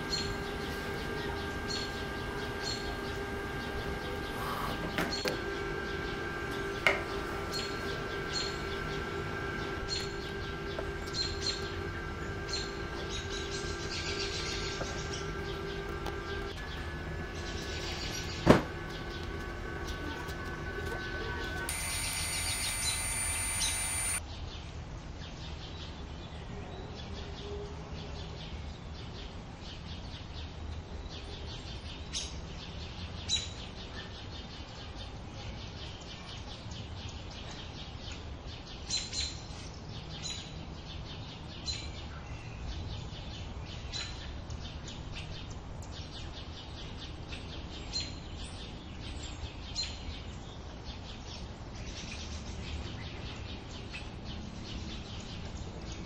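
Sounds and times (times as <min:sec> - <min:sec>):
birds chirping: 0:00.0 - 0:24.2.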